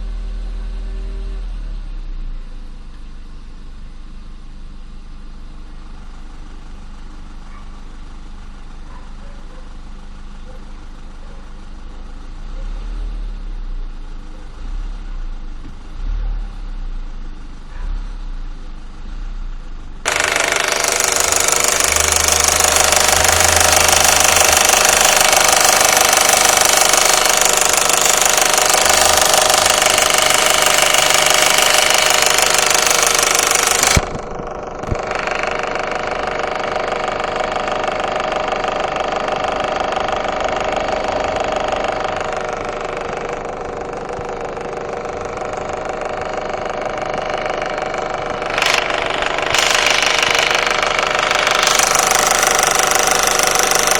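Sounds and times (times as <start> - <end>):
turbo engine idling: 16.9 - 53.9.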